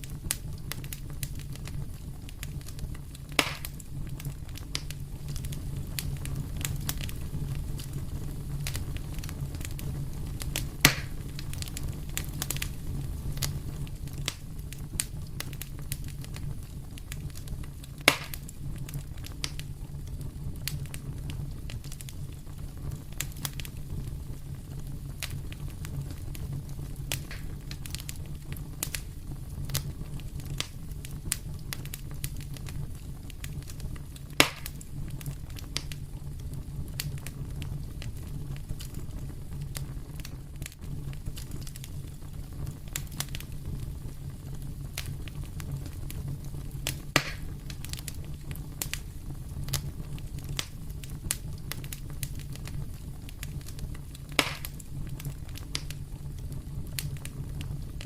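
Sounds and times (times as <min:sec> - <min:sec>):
fireplace fire crackling: 0:00.0 - 0:58.0
loud fire pops: 0:00.0 - 0:58.0
low rumble of fire: 0:00.0 - 0:58.0.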